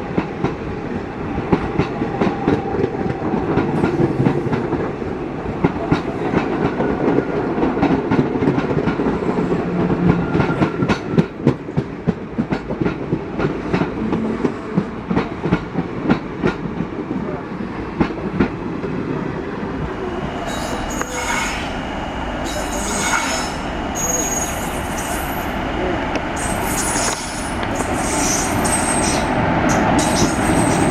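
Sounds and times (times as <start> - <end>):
low train rumble: 0.0 - 30.9
high-pitched wheel squeal: 20.5 - 21.7, 22.5 - 25.5, 26.4 - 29.3
train wheels clicking over rails: 26.1 - 30.9.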